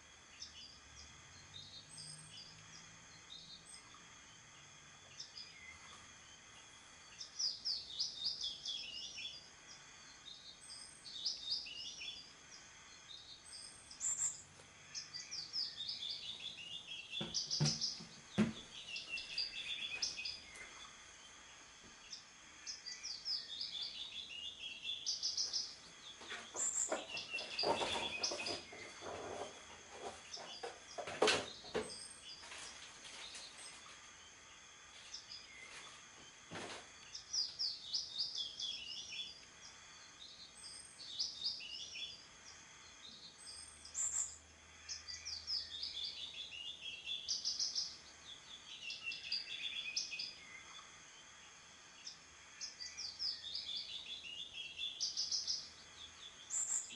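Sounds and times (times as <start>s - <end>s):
songbird singing: 0.0s - 56.9s
sharp knocks: 17.2s - 18.7s.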